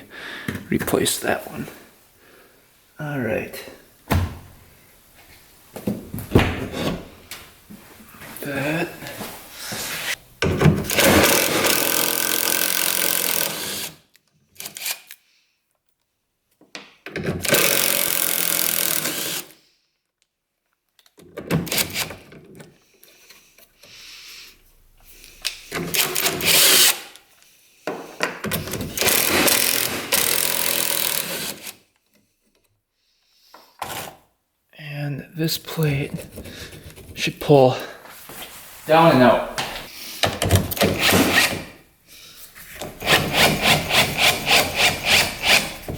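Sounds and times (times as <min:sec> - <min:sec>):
power drill running: 0:10.9 - 0:13.9, 0:17.4 - 0:19.5, 0:29.0 - 0:31.7.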